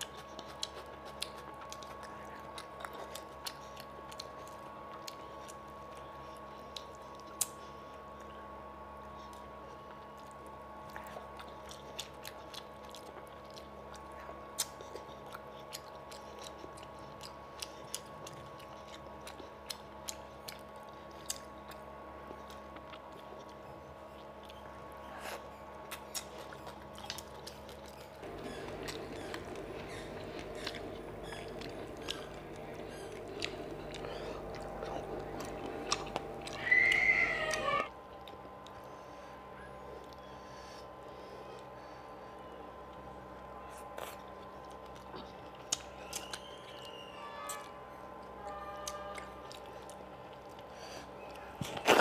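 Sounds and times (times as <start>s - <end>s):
person chewing food: 0.0s - 38.9s, 39.5s - 41.8s, 42.4s - 52.0s
steady background noise: 0.0s - 52.0s
steady low hum: 0.0s - 52.0s
soft wet mouth clicks: 13.5s - 16.6s.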